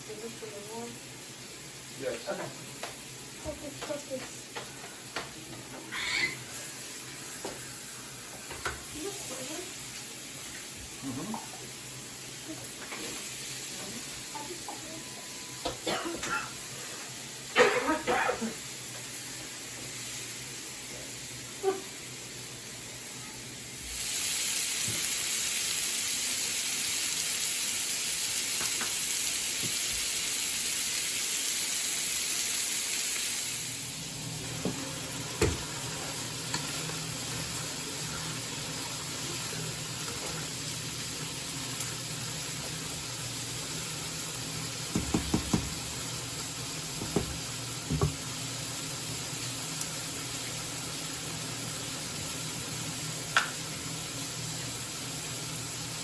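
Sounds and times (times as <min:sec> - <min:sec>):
food sizzling in a pan: 0:00.0 - 0:56.0.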